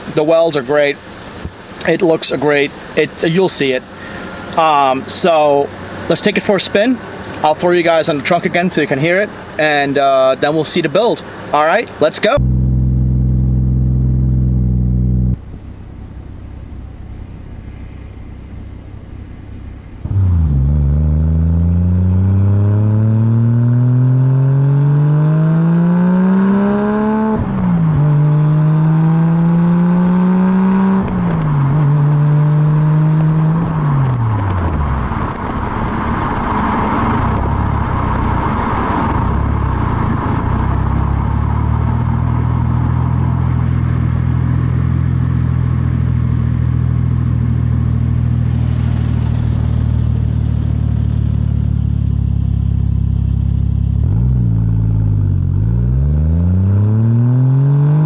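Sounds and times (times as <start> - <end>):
car engine accelerating: 12.3 - 58.0
low engine drone: 12.4 - 58.0.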